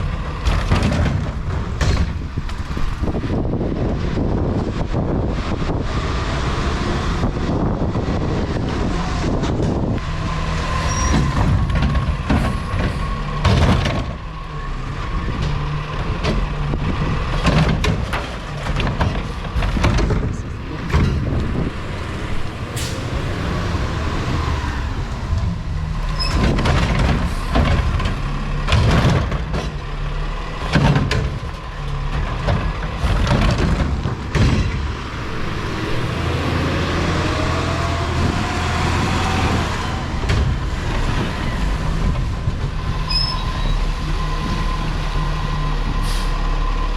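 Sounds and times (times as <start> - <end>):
truck engine running: 0.0 - 46.9
rising whine: 20.1 - 26.7, 33.9 - 40.2.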